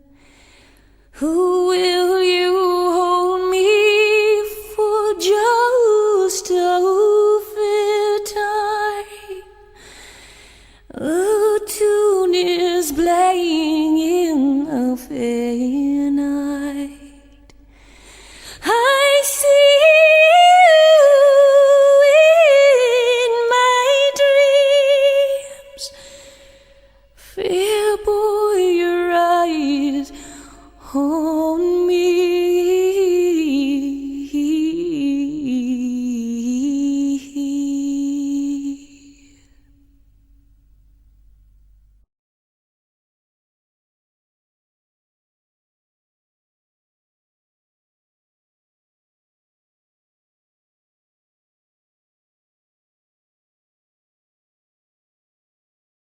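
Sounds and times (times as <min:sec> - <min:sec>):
woman singing unaccompanied: 0:01.2 - 0:09.7, 0:10.9 - 0:17.5, 0:18.6 - 0:26.3, 0:27.2 - 0:39.5.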